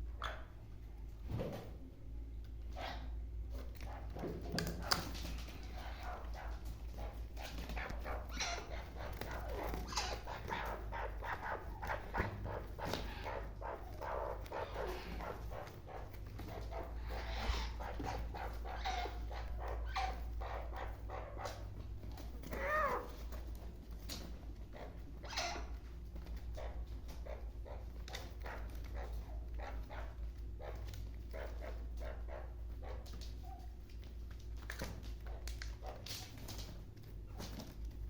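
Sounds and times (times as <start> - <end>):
bird harsh repeated calls: 7.4 - 16.1.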